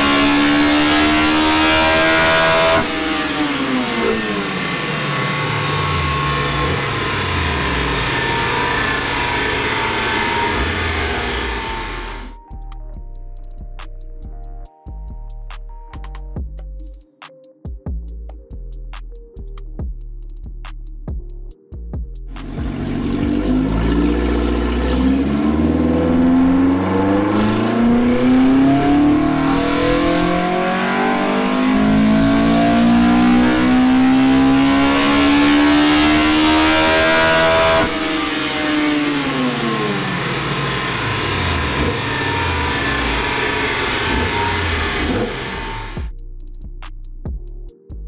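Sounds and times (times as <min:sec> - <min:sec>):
car engine revving on dyno: 0:00.0 - 0:12.4, 0:22.4 - 0:46.1.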